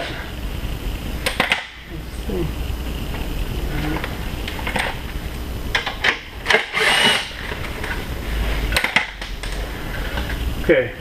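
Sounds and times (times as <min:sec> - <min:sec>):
power drill whining: 0:06.4 - 0:07.4.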